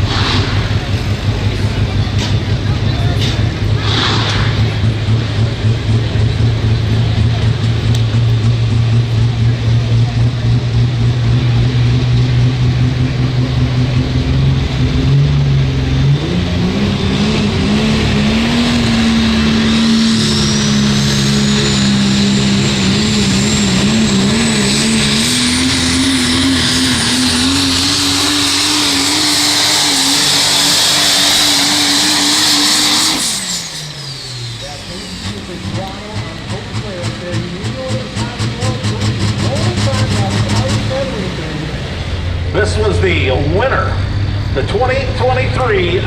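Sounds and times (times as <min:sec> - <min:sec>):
diesel engine at full throttle: 0:00.0 - 0:46.0
high turbo whistle: 0:19.0 - 0:35.6.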